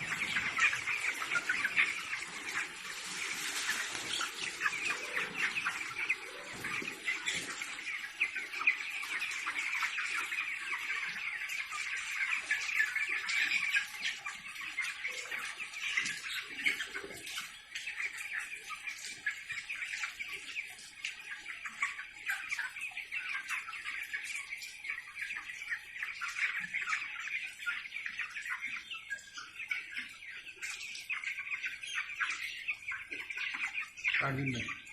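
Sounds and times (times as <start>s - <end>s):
chickens peeping and clucking: 0.0s - 34.9s.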